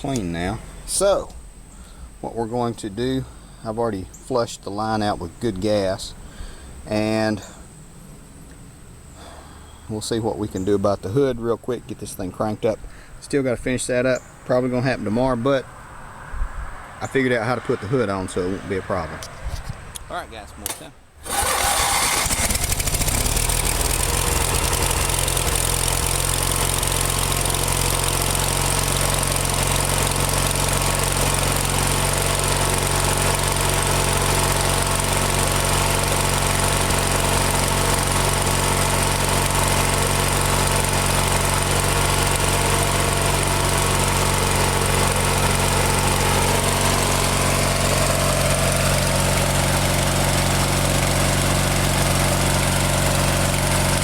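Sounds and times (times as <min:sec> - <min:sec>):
tractor engine starting and idling: 0:20.6 - 0:54.0.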